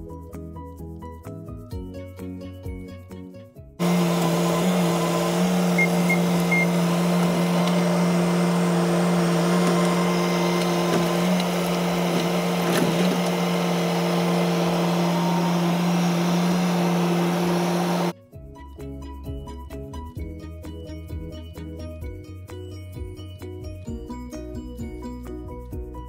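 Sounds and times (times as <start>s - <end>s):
bucket pushing root ball: 3.8s - 18.1s
diesel engine running: 3.8s - 18.1s.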